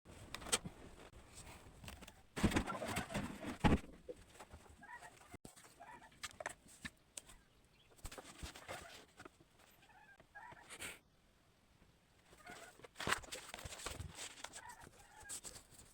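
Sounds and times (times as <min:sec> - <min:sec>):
chickens clucking: 0:04.7 - 0:06.2, 0:09.8 - 0:10.7.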